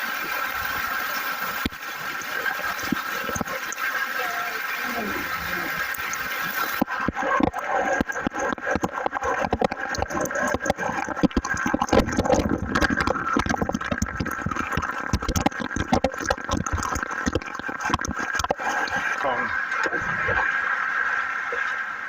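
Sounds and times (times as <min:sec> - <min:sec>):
rushing water: 0:00.0 - 0:22.0
sharp crackles and knocks: 0:05.9 - 0:19.2.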